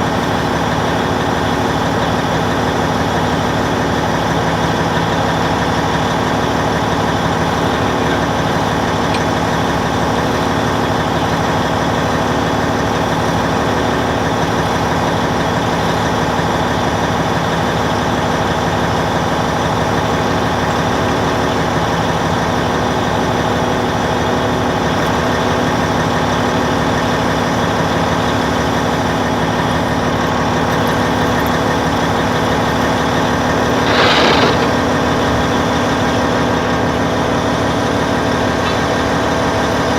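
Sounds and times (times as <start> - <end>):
bulldozer diesel engine running: 0.0 - 39.9
short burst of noise: 33.5 - 36.4.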